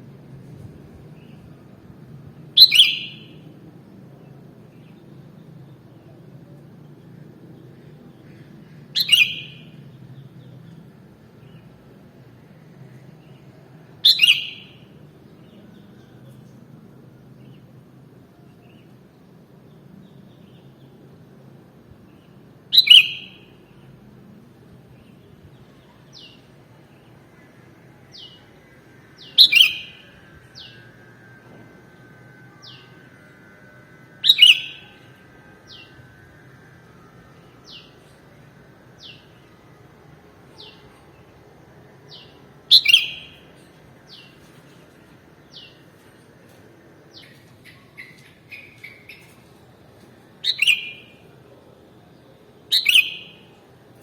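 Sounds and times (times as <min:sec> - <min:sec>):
bird sharp call notes: 0:42.7 - 0:43.4.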